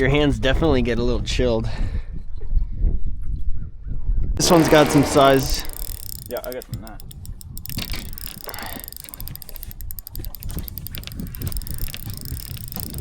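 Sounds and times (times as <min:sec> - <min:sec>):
fishing reel clicking rapidly: 0:04.4 - 0:13.0.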